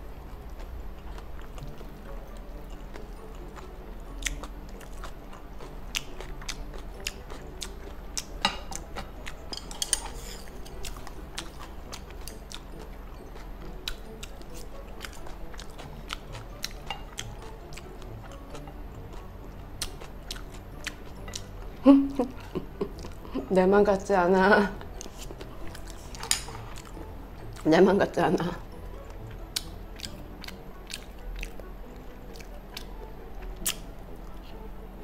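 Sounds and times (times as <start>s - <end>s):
steady low hum: 0.0s - 35.0s
close chewing with clicks: 0.3s - 9.4s, 10.7s - 21.5s, 29.1s - 34.4s.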